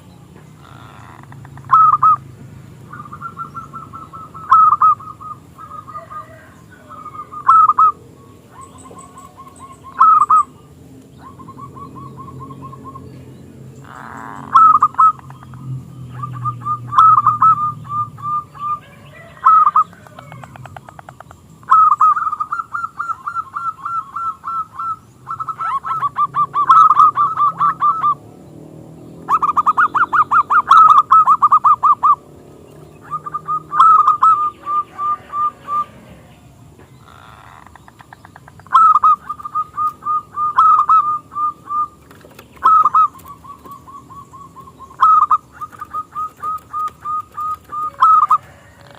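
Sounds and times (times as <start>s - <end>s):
dove cooing: 0.0s - 28.4s, 29.2s - 48.9s.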